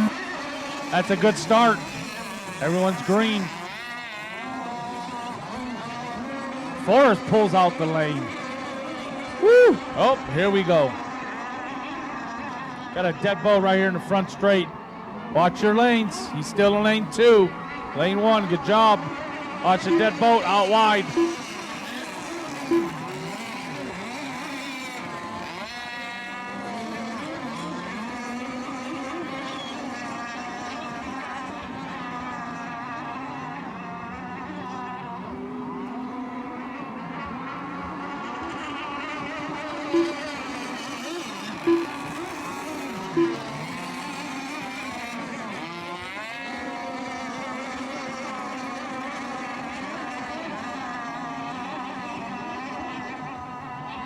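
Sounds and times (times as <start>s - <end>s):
rc boat motors whining: 0.0s - 54.0s
short loud beep: 21.1s - 21.4s.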